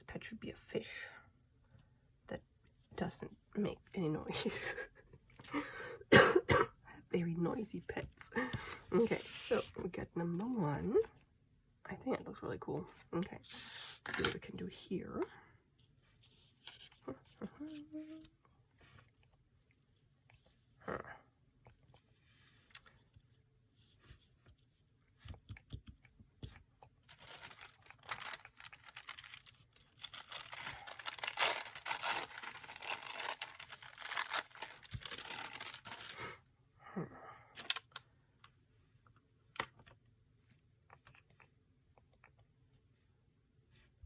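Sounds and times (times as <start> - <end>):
paper tearing and rustling: 27.1 - 36.2.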